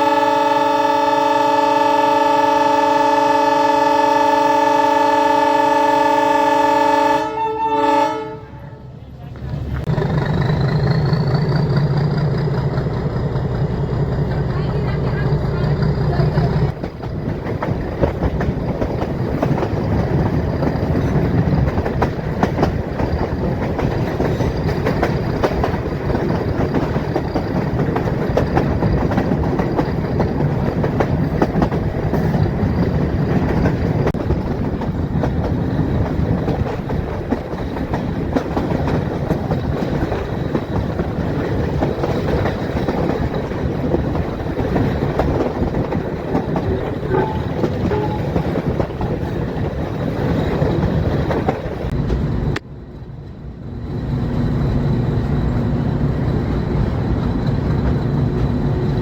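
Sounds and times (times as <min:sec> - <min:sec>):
passenger train rumbling: 0:00.0 - 0:59.0
wheels clacking over rail joints: 0:09.2 - 0:53.4.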